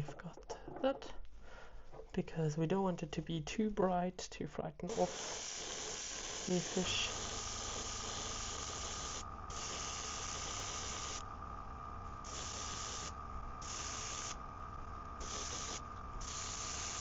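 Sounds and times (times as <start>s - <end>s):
steady hum: 4.8s - 17.0s
airbrush spraying hiss: 4.9s - 11.2s, 12.2s - 14.4s, 15.2s - 17.0s.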